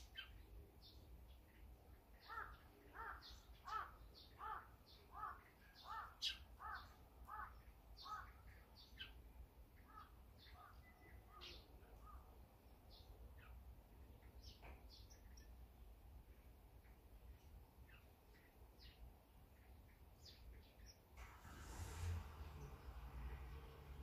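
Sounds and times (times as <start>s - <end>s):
harsh bird calls: 2.2s - 9.2s.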